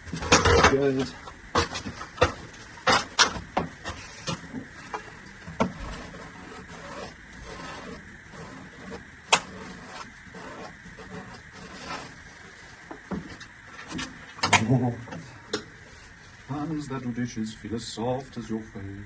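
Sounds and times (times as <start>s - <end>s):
plastic rubbing: 1.6s - 14.2s.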